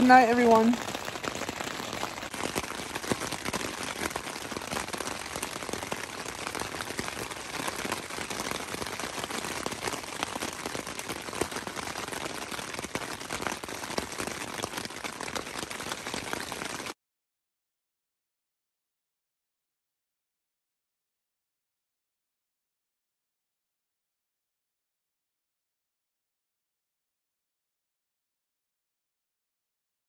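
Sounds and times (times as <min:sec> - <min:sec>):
rain on a tent: 0:00.0 - 0:17.0.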